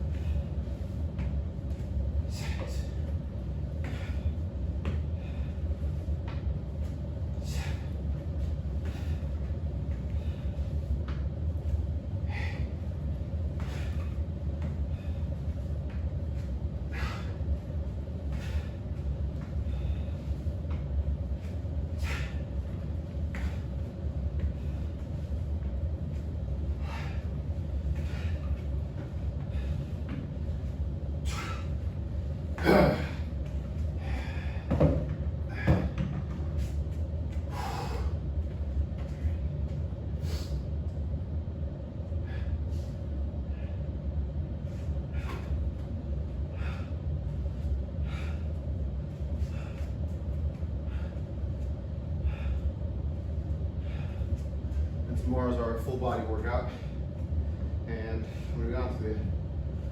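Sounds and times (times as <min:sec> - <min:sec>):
steady low hum: 0:00.0 - 0:59.9
person breathing hard: 0:02.3 - 0:03.2, 0:03.8 - 0:06.1, 0:07.4 - 0:08.1, 0:08.8 - 0:10.8, 0:12.2 - 0:14.2, 0:16.8 - 0:20.7, 0:21.9 - 0:22.7, 0:26.6 - 0:30.2, 0:31.2 - 0:31.9, 0:32.5 - 0:36.0, 0:37.4 - 0:38.2, 0:42.2 - 0:44.0, 0:45.0 - 0:45.7, 0:46.4 - 0:48.6, 0:49.3 - 0:52.9, 0:53.7 - 0:54.5.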